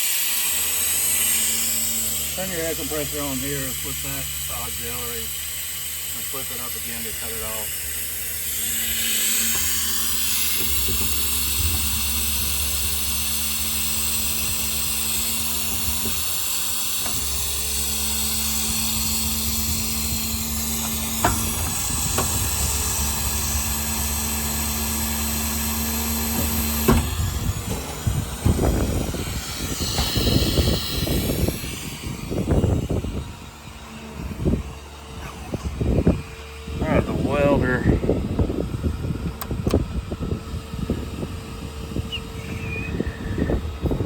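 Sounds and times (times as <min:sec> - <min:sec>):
air compressor humming and hissing: 0:00.0 - 0:44.0
irregular rumbling and knocks: 0:06.2 - 0:37.7.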